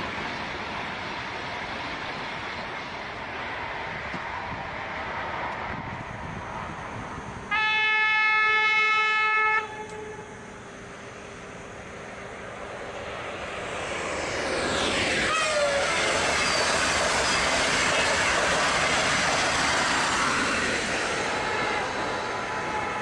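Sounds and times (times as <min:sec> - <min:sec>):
moving train rushing: 0:00.0 - 0:23.0
train horn blast: 0:07.5 - 0:10.4, 0:15.3 - 0:15.8.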